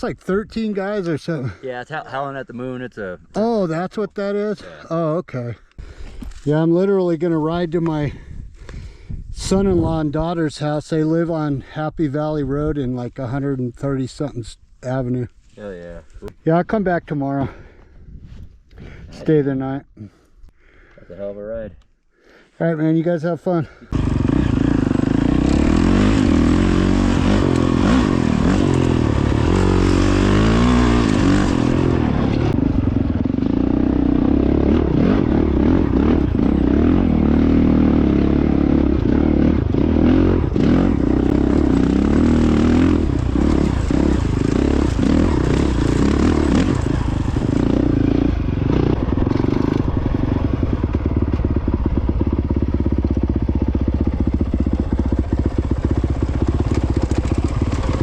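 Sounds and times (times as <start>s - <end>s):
dirt bike engine revving: 23.9s - 58.0s.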